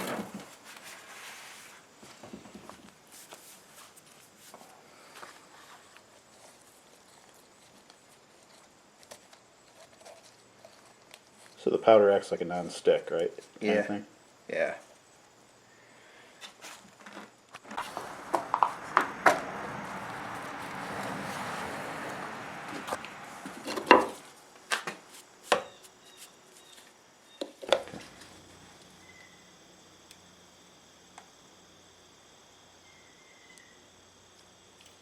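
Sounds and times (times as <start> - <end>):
sand pouring: 17.7 - 23.5.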